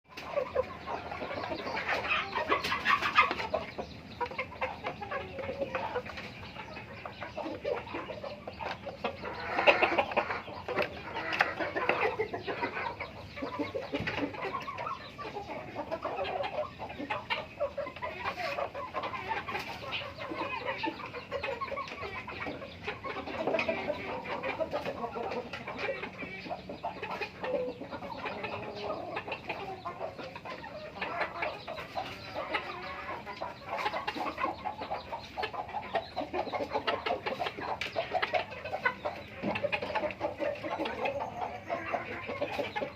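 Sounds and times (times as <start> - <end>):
chickens clucking: 0.1 - 42.9.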